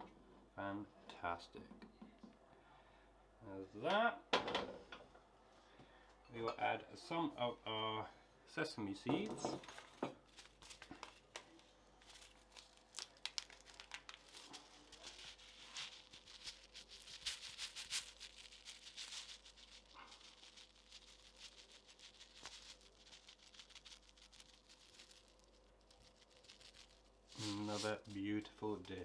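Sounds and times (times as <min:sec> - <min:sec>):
packet crinkling and tearing: 0:09.7 - 0:29.0
seeds being shaken out: 0:09.7 - 0:29.0.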